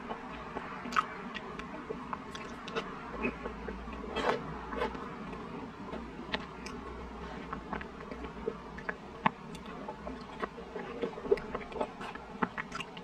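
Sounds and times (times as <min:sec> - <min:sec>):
wet chewing with mouth smacks: 0:00.0 - 0:13.0.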